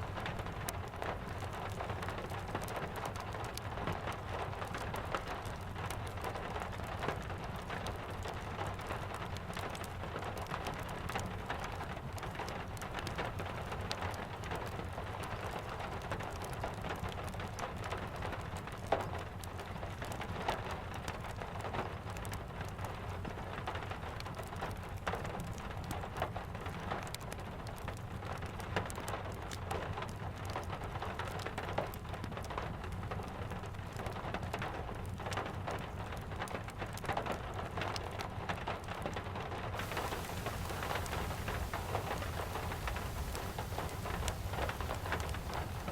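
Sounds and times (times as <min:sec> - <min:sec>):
steady rain falling: 0:00.0 - 0:39.2, 0:39.8 - 0:45.9
wood fire crackling: 0:39.8 - 0:45.9.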